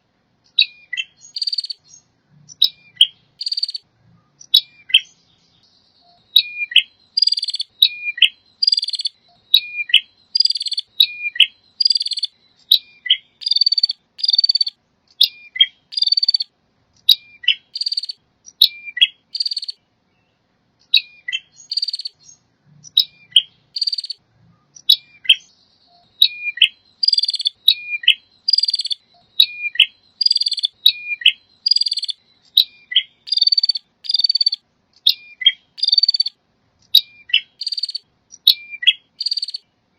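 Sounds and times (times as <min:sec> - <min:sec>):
bird singing whistle and rattle: 0:00.5 - 0:19.8, 0:20.9 - 0:39.7.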